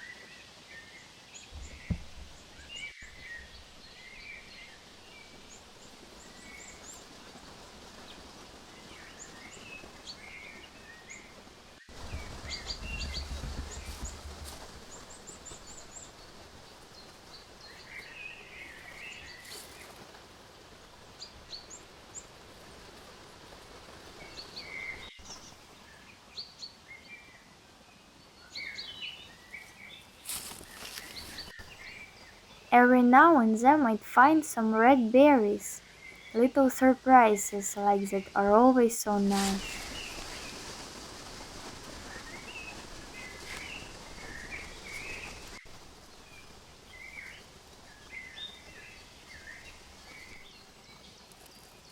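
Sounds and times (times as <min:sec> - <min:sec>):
small birds chirping: 0:29.6 - 0:32.3, 0:39.3 - 0:40.8
sharp rustles: 0:30.1 - 0:31.6
faint hiss: 0:35.4 - 0:51.9.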